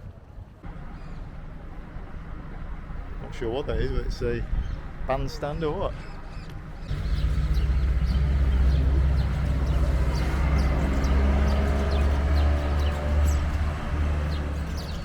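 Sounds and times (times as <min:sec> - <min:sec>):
vehicle engine humming: 0:06.8 - 0:15.0.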